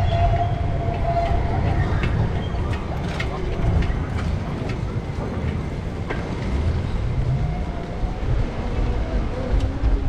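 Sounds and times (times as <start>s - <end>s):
wind buffeting microphone: 0.0s - 10.0s
bicycle rolling: 1.7s - 8.6s.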